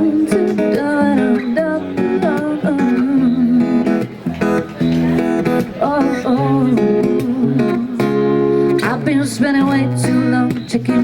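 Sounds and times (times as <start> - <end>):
woman singing wordless phrases: 0.0 - 3.9, 5.8 - 8.1, 8.7 - 11.0
acoustic guitar strumming: 0.0 - 11.0.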